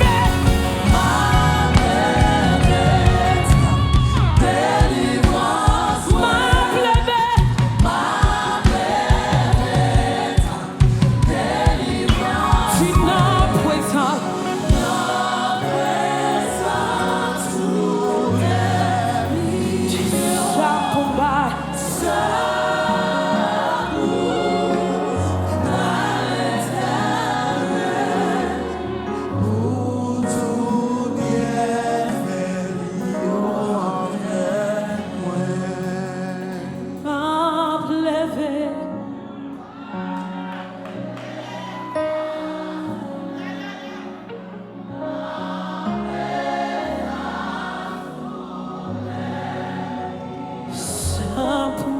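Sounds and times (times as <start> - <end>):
held bass notes: 0.0 - 6.5
steady drum beat: 0.0 - 16.0
choir singing with band: 0.0 - 38.5, 40.0 - 51.9.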